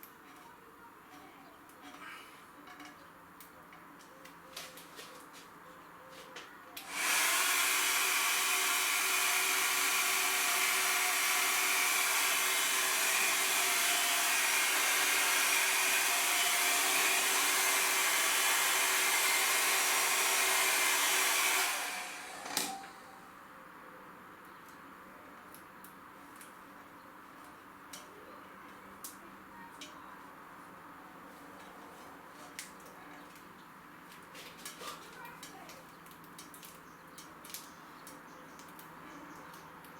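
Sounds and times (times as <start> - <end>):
hair dryer blowing: 6.8 - 23.3
hair dryer switch click: 21.5 - 23.0.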